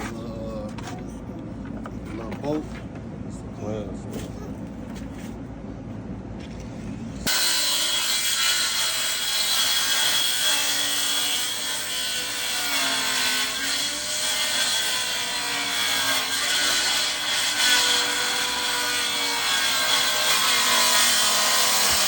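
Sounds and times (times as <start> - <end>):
power saw cutting wood: 7.3 - 22.0.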